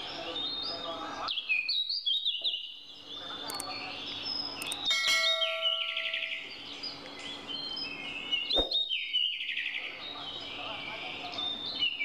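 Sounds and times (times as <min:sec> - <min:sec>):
forest birds singing: 0:00.0 - 0:12.0
sharp click: 0:03.4 - 0:03.7, 0:04.6 - 0:04.9.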